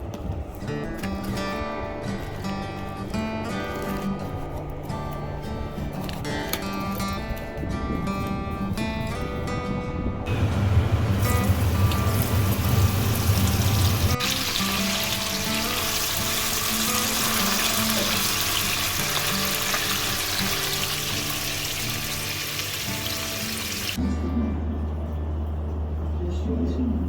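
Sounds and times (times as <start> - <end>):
soft background music: 0.0 - 27.0
loud rushing hiss: 10.3 - 19.5.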